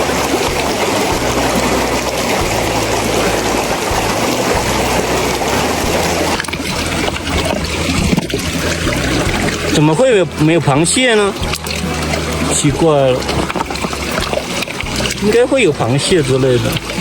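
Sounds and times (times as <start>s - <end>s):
river water rushing over stones: 0.0s - 17.0s.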